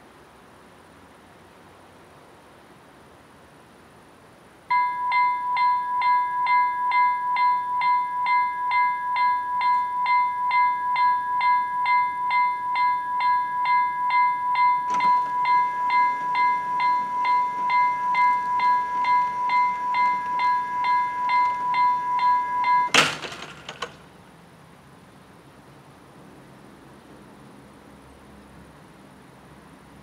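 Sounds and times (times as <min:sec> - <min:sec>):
level crossing warning bell: 0:04.7 - 0:24.0
steady held tone: 0:04.7 - 0:24.0.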